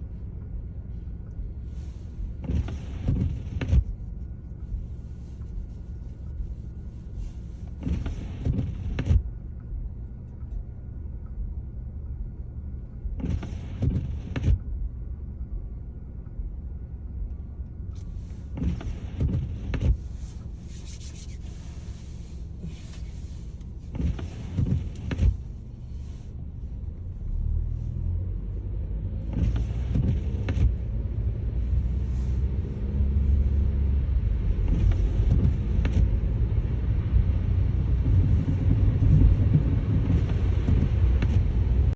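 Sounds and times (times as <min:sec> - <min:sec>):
car road and engine rumble: 0:00.0 - 0:41.9.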